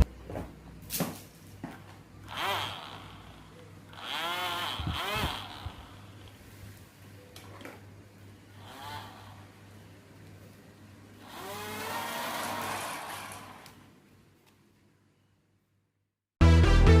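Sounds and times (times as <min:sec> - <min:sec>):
drone propeller motor whining: 0:02.3 - 0:06.3, 0:11.2 - 0:13.8.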